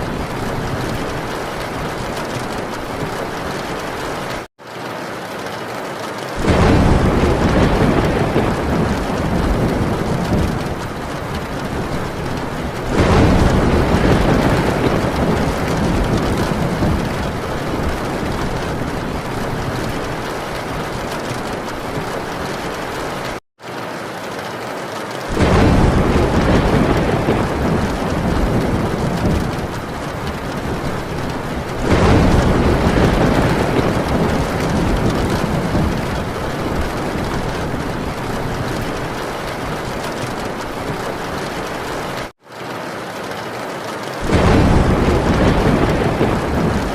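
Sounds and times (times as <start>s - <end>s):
heavy rain on a tin roof: 0.0s - 46.9s
deep rolls of thunder: 6.4s - 23.4s, 25.3s - 42.3s, 44.2s - 46.9s.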